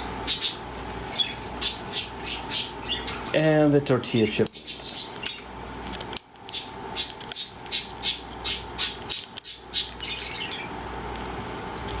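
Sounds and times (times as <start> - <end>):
bird crunching a chip: 4.4 - 12.0.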